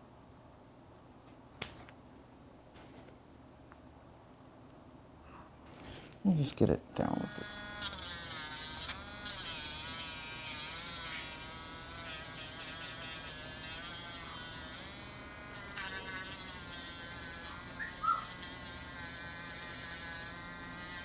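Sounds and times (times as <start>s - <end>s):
rotary nail grinder whining: 7.2s - 21.0s
bird chirps: 18.0s - 18.2s.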